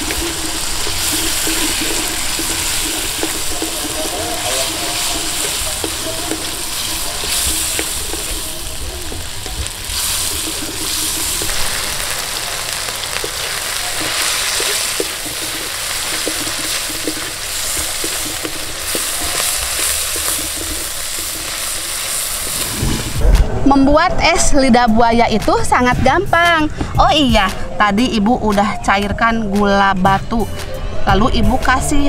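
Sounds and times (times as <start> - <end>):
wooden spatula stirring and scraping: 0.0 - 23.0
food sizzling in a wok: 0.0 - 23.2.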